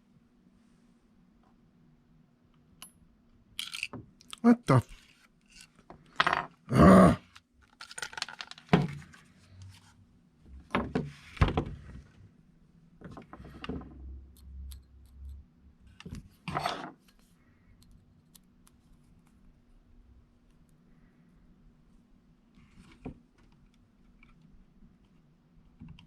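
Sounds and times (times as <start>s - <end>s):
tools clattering and scraping: 16.5s - 17.0s.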